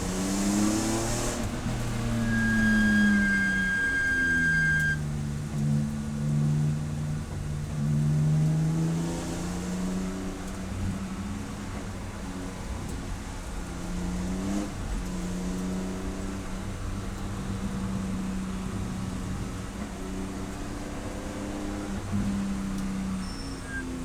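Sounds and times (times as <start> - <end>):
race car engine running: 0.0 - 3.9.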